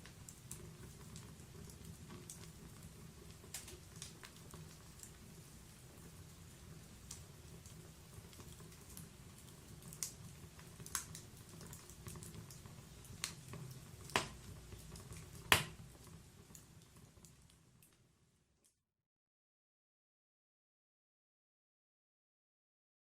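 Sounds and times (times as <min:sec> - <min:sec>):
wood crackling and popping: 0:00.0 - 0:18.1.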